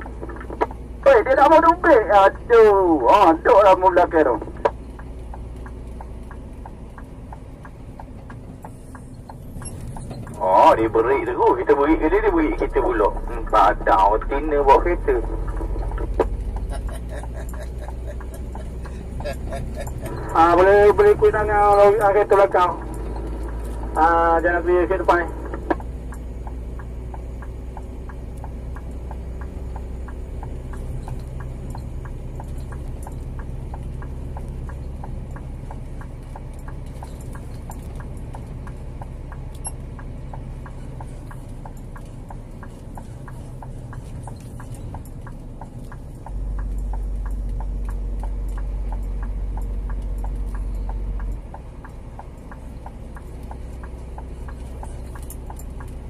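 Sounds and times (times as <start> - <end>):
diesel truck engine droning: 0.0 - 56.0
quick regular ticking: 0.0 - 56.0
deeper louder drone: 7.0 - 35.3.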